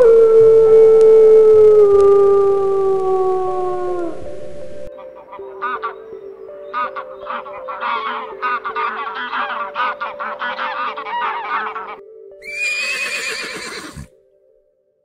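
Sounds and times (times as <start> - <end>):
geese honking: 5.0 - 12.0
horse whinny: 12.4 - 14.1.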